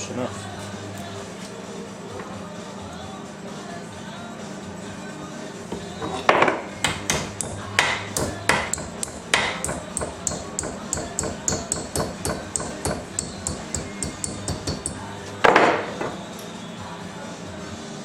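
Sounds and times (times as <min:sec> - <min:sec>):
hammer striking sheet steel: 0:06.8 - 0:15.1.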